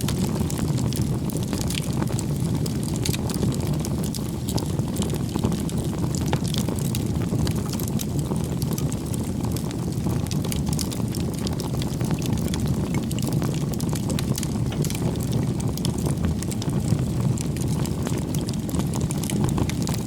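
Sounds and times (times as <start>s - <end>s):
low rumble of flames: 0.0s - 20.0s
wood crackling and popping: 0.0s - 20.0s.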